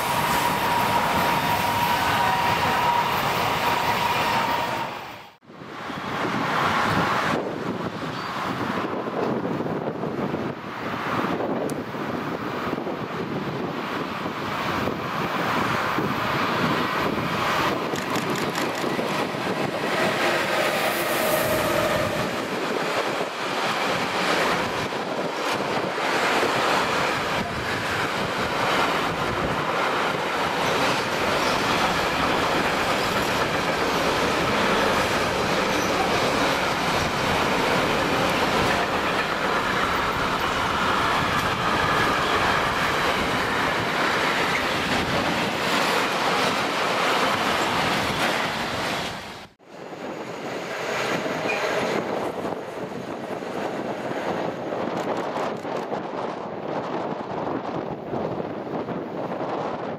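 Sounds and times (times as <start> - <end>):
freight train passing: 0.0 - 59.9
wheels clacking on track: 14.8 - 21.0, 21.6 - 49.2.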